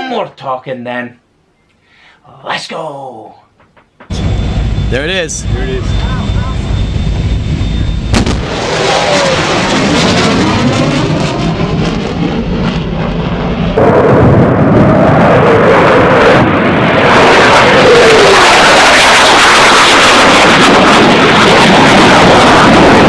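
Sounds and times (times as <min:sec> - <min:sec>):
sharp bang: 0:03.8 - 0:09.2
jet roaring overhead: 0:04.0 - 0:23.0.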